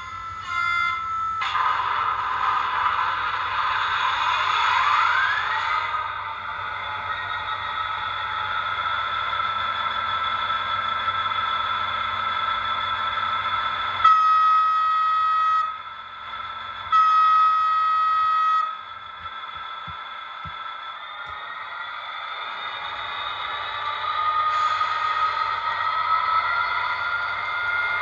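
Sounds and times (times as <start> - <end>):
model locomotive drone: 0.0 - 28.0
locomotive horn blasts: 6.4 - 21.5.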